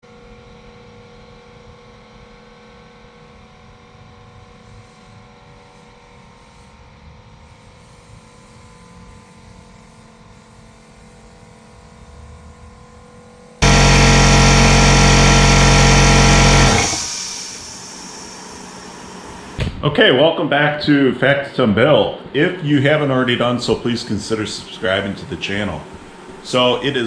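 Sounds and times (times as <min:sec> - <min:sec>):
steady machine hum: 0:13.6 - 0:19.6.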